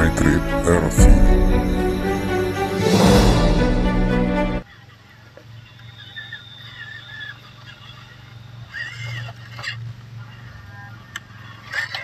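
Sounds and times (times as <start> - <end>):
steady low hum: 0.0 - 4.6
birds calling: 5.6 - 9.8.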